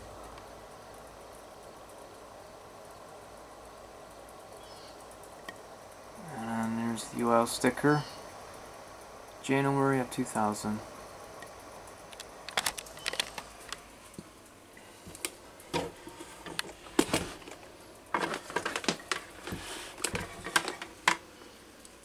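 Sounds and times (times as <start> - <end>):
fan being handled with clicks and knocks: 11.4 - 14.4, 15.0 - 21.6.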